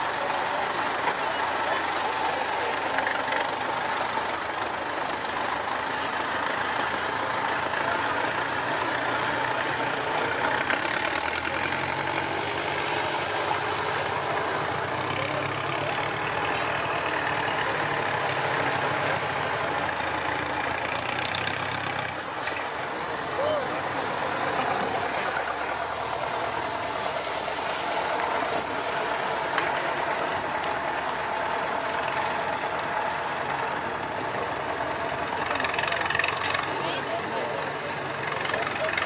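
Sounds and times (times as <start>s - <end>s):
truck diesel engine running: 0.0s - 39.0s
air hiss: 29.6s - 30.4s, 32.1s - 32.6s.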